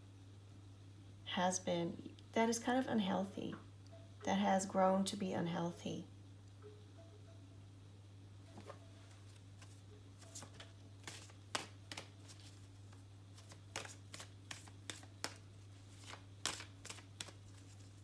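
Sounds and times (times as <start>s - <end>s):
cards snapping and swishing: 9.6s - 18.0s.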